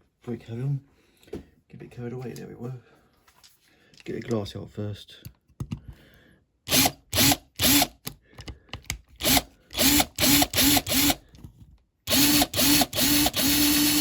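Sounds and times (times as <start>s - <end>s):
electric drill motor bursts: 6.7s - 8.0s, 9.2s - 11.2s, 12.1s - 14.0s.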